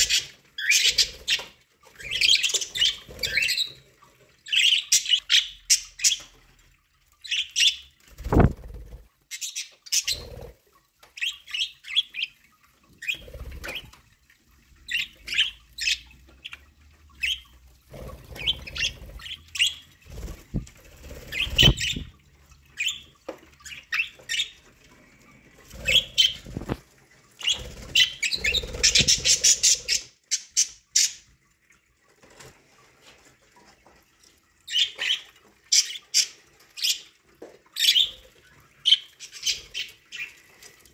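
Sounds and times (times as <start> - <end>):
budgerigars chirping and squawking: 0.0 - 6.4, 7.2 - 14.0, 14.9 - 31.3, 34.7 - 40.6
wing flaps and rustles: 8.1 - 9.2, 20.0 - 22.2, 25.6 - 29.6.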